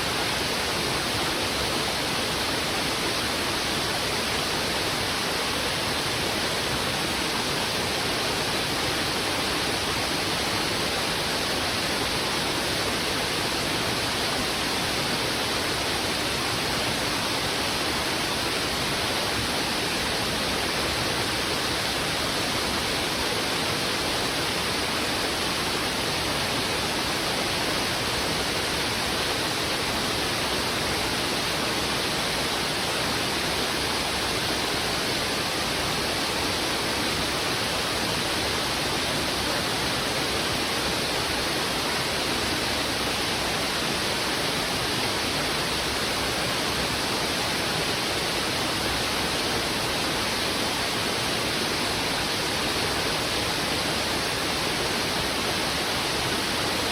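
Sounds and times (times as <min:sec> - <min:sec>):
river rushing over rocks: 0:00.0 - 0:56.9.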